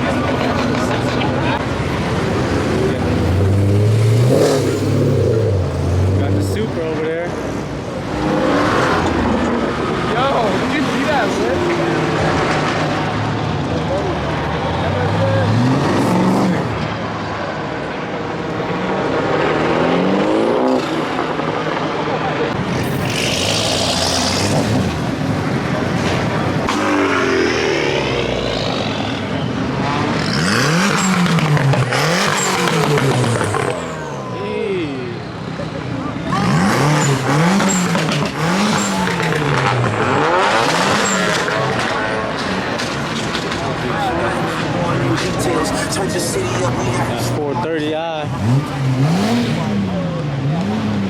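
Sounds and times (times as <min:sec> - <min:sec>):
car engine revving: 0:00.0 - 0:51.0
loud rushing noise: 0:22.5 - 0:34.3.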